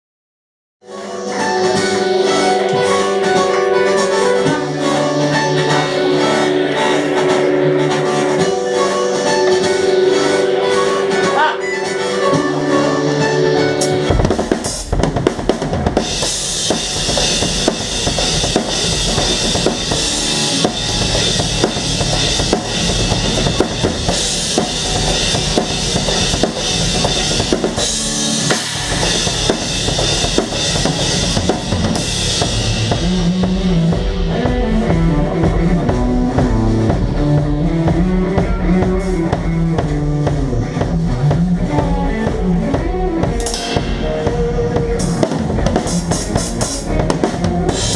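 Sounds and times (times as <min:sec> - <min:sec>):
low melodic line: 0:00.8 - 0:14.8, 0:15.9 - 0:47.9
rock band playing live: 0:00.8 - 0:47.9
cymbals crashing: 0:16.0 - 0:33.2.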